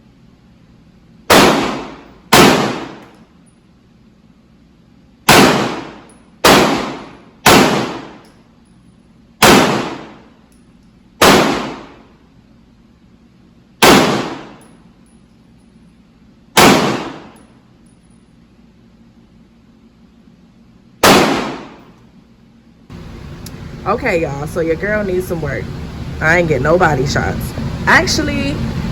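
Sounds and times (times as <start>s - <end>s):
gunshots: 1.3s - 3.1s, 5.3s - 8.2s, 9.4s - 10.3s, 11.2s - 12.0s, 13.8s - 14.6s, 16.6s - 17.4s, 21.0s - 21.8s.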